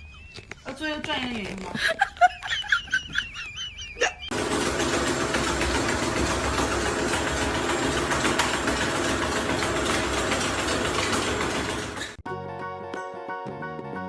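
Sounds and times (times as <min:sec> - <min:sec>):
motor running with fast rattle: 0:04.3 - 0:12.2.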